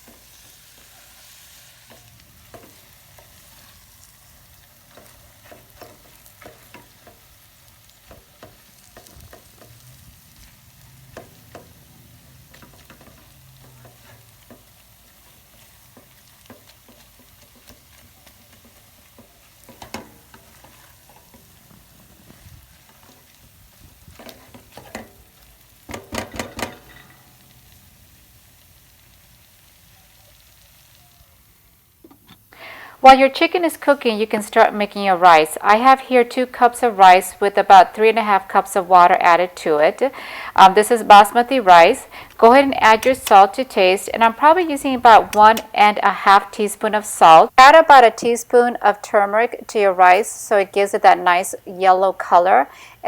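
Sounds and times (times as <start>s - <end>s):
food sizzling in oil: 0.0s - 53.0s
utensil scraping and knocking pan: 1.8s - 3.6s, 4.8s - 7.3s, 10.4s - 23.4s, 24.1s - 25.3s, 25.9s - 27.3s.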